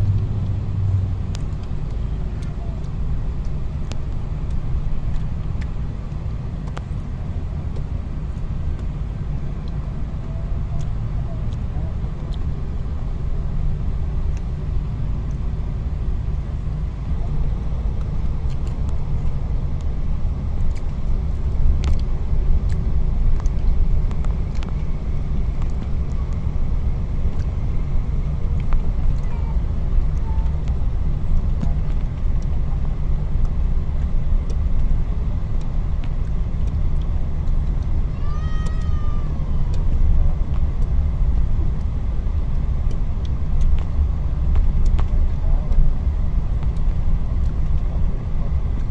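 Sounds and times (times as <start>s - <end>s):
car engine and tyre rumble: 0.0s - 48.9s
faint clicks: 35.6s - 39.0s.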